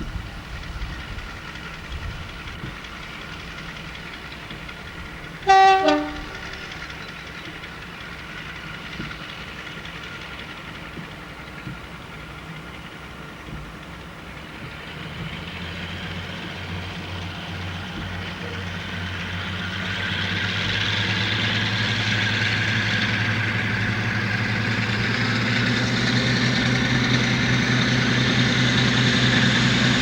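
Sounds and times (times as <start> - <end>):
train engine running: 0.0 - 30.0
two-tone train horn: 5.4 - 6.8.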